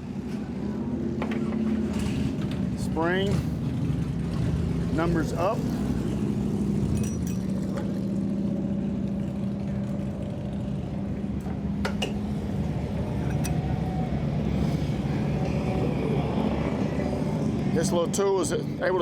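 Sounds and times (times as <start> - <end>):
machinery humming: 8.0 - 19.0.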